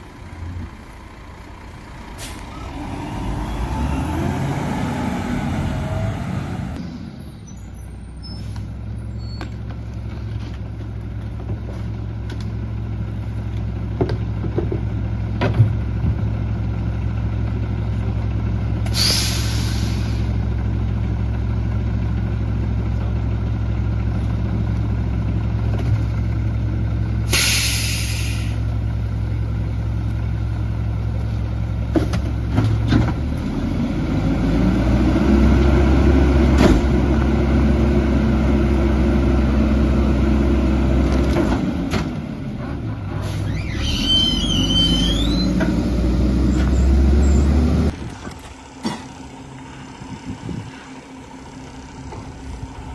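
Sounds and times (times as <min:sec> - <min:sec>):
truck diesel engine idling: 0:00.0 - 0:04.2, 0:09.8 - 0:32.5, 0:47.9 - 0:52.9
air brake release hiss: 0:02.2 - 0:02.6, 0:18.9 - 0:20.3, 0:27.3 - 0:28.7.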